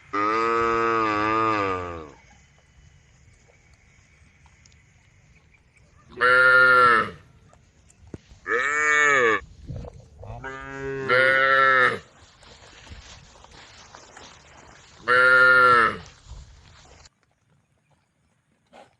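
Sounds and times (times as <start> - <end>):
cows mooing: 6.1 - 7.2, 8.5 - 9.4, 10.2 - 12.0.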